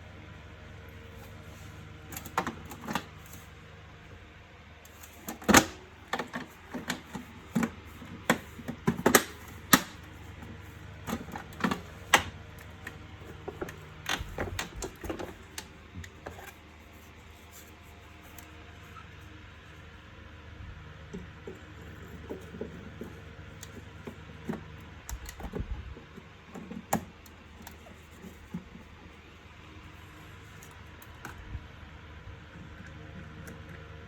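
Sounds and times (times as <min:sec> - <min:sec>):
plastic parts clicking and knocking: 0:02.1 - 0:03.4, 0:04.9 - 0:16.6.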